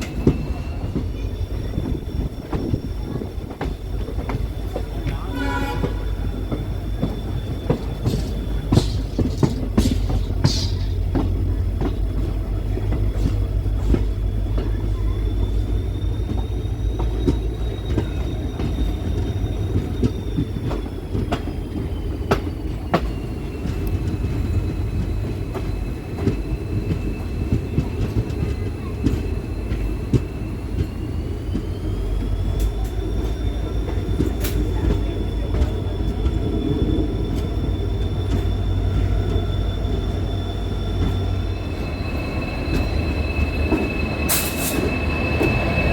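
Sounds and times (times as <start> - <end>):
high wheel squeal: 0.0 - 45.9
rail joint clicks: 0.0 - 45.9
train rumbling on rails: 0.0 - 45.9.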